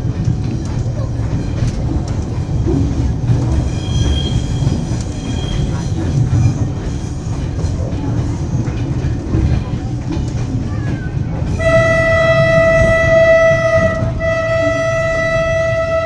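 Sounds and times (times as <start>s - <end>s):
train low rumble: 0.0s - 16.0s
high wheel squeal: 3.6s - 5.8s.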